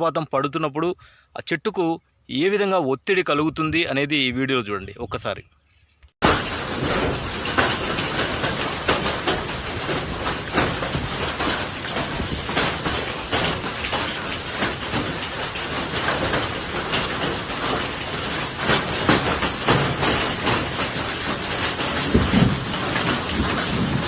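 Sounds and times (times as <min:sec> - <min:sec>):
heavy rain pouring: 0:06.2 - 0:24.0.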